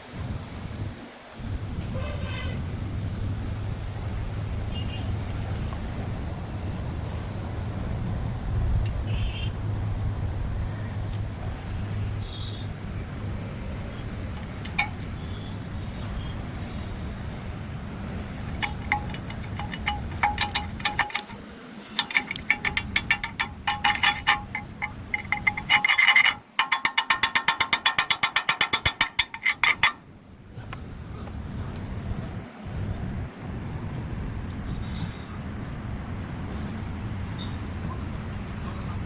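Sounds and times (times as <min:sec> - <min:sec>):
metallic taps on steel: 0:14.3 - 0:15.2, 0:18.5 - 0:30.0.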